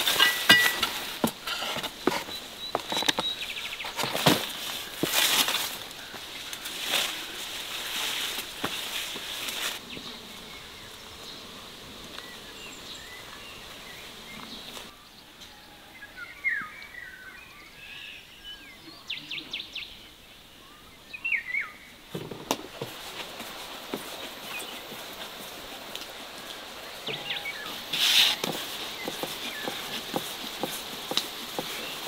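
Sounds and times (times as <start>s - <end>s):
rustling: 0.0s - 9.8s, 22.1s - 32.0s
birds chirping: 0.0s - 32.0s
faint steady hiss: 0.0s - 32.0s.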